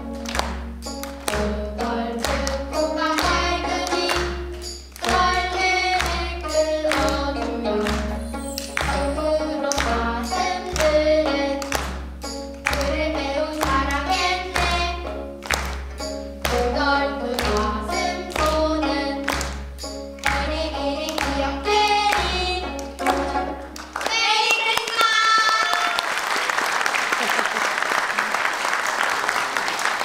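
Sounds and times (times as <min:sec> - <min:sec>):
plucked zither: 0:01.3 - 0:14.8
children singing together: 0:01.5 - 0:11.9, 0:12.7 - 0:15.2, 0:16.5 - 0:19.6, 0:20.2 - 0:24.5.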